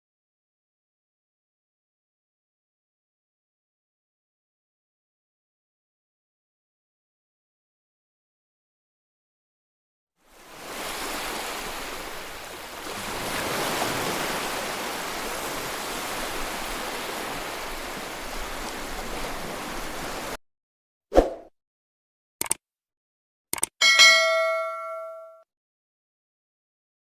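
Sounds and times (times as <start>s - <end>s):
rushing water: 10.2s - 20.4s
brief clicks: 22.4s - 22.6s, 23.5s - 23.8s.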